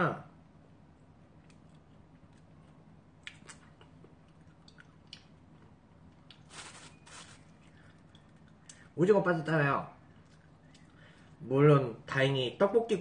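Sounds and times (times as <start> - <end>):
person chewing: 1.3 - 8.9, 10.0 - 11.4
noisy rustle: 6.4 - 7.6.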